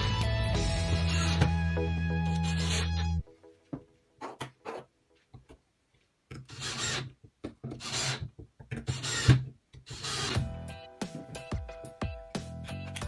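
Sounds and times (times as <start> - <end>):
hand file rasping: 0.7 - 1.6, 2.3 - 3.2, 6.5 - 7.1, 7.8 - 10.4.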